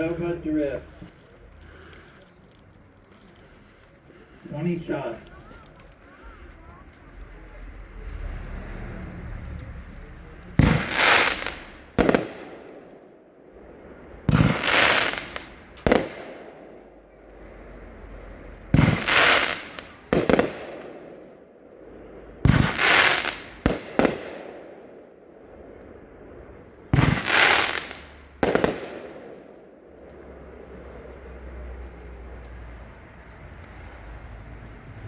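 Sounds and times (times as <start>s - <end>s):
sharp firework report: 4.4s - 32.4s
firework bangs with hissing crackle: 8.7s - 31.0s.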